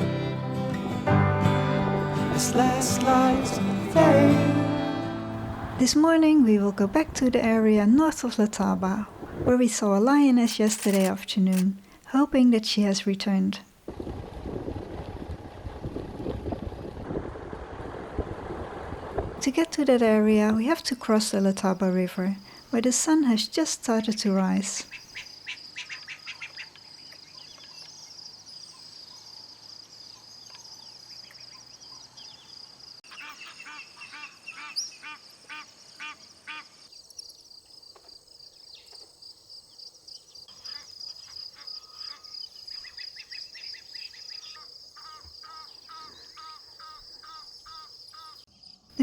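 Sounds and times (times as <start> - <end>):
birds calling: 24.9 - 29.3, 30.4 - 36.9, 40.5 - 48.5
high-pitched insect trill: 35.6 - 48.9.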